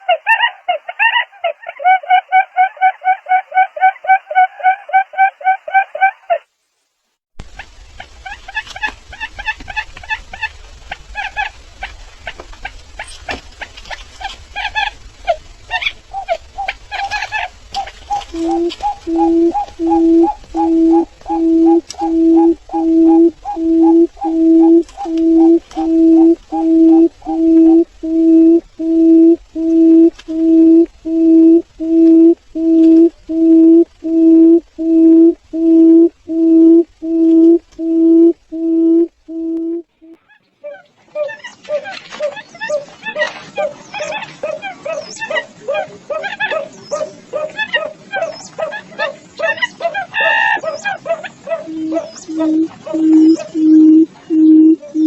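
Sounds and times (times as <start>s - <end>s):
low steady hum: 7.4s - 40.2s, 50.5s - 55.0s
bird calling short notes: 15.7s - 39.8s, 51.7s - 55.0s.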